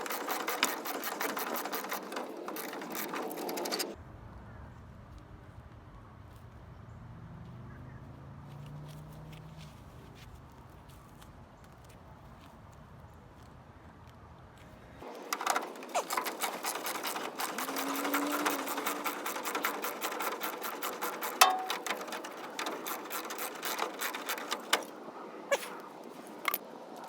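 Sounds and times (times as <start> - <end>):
rapid mechanical clicking: 0.0 - 4.0, 15.0 - 25.0.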